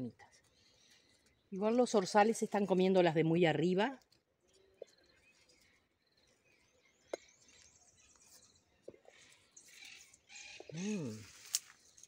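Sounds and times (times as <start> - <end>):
bird chirps and trills: 4.4 - 12.0.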